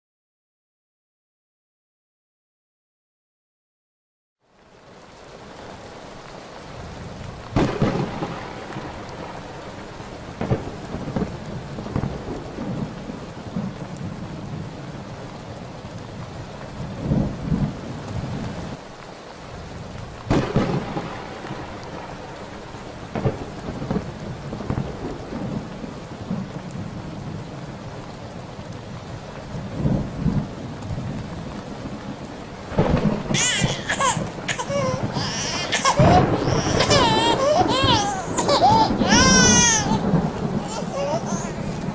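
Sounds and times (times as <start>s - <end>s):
steady rain: 4.4s - 41.9s
thunder rumbling: 6.1s - 18.8s, 19.4s - 41.9s
loud thunderclaps: 6.8s - 14.9s, 19.6s - 27.4s, 29.6s - 41.9s
high wavering cry: 33.4s - 40.0s, 40.6s - 41.9s.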